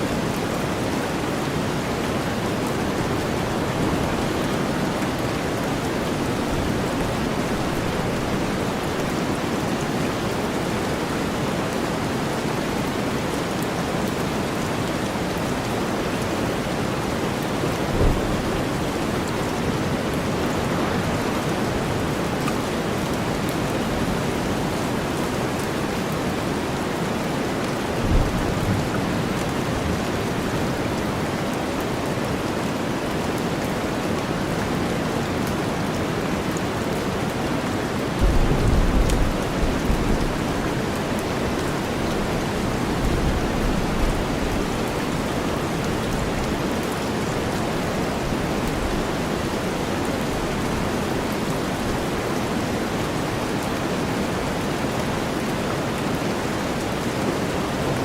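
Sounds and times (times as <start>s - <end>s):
steady rain hiss: 0.0s - 58.0s
thunder rumbling: 2.9s - 9.4s, 17.5s - 24.8s, 28.0s - 30.6s, 38.2s - 46.5s.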